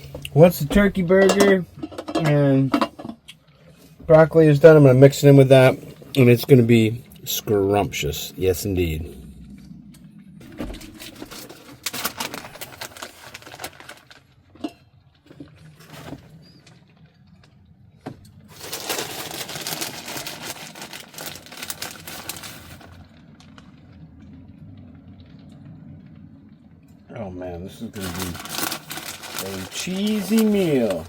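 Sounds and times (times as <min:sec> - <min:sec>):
steady low hum: 0:00.0 - 0:31.0
food crackling in frying pan: 0:10.0 - 0:17.5, 0:18.4 - 0:26.3, 0:27.9 - 0:31.0.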